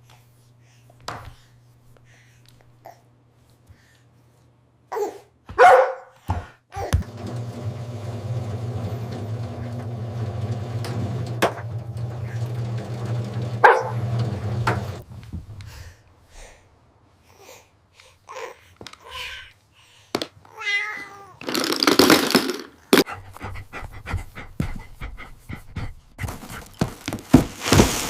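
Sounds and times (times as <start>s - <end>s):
dog barking: 5.5s - 6.2s, 13.6s - 14.0s.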